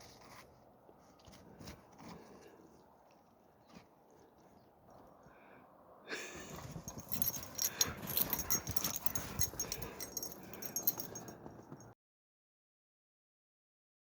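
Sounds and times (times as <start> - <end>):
dog snuffling: 6.9 - 11.4.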